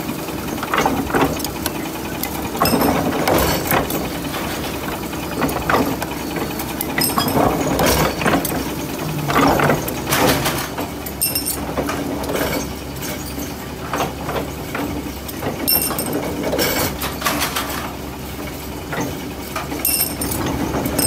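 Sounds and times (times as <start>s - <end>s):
motor humming: 0.0s - 11.5s
metallic clanks and knocks: 0.6s - 17.9s.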